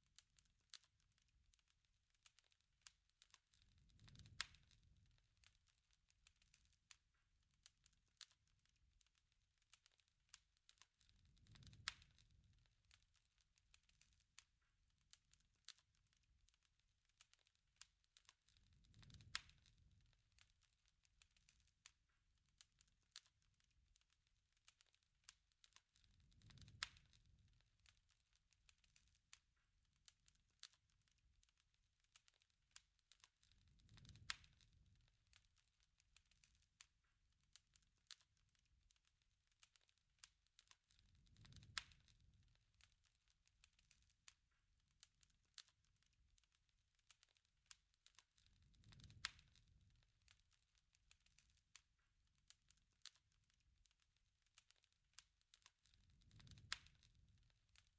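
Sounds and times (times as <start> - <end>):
campfire pops and snaps: 0.1 - 57.9
low rush of flame: 48.6 - 49.9.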